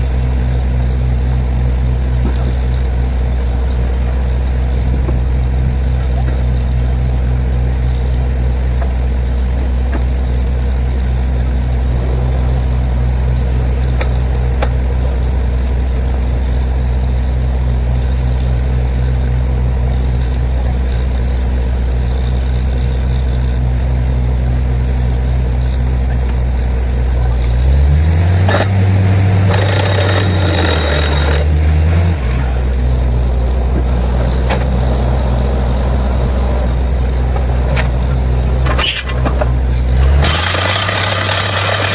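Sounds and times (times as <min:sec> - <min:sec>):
drilling rig engine revving: 0:26.9 - 0:41.9.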